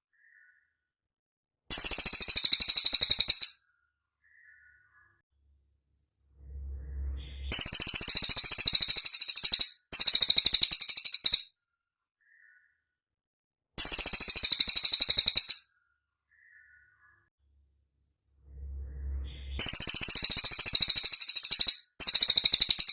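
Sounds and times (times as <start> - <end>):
songbird high-pitched rapid trills: 1.7 - 3.6, 7.0 - 11.5, 13.8 - 15.6, 19.1 - 22.9.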